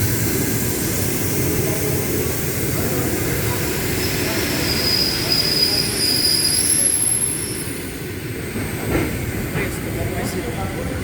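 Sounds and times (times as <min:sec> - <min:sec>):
train rumbling: 0:00.0 - 0:11.0
wheel squeal: 0:04.0 - 0:07.7.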